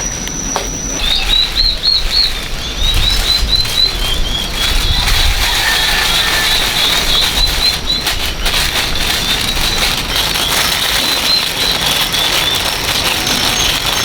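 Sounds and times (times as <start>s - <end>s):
noisy rustle: 0.0s - 14.0s
small birds chirping: 0.0s - 14.0s.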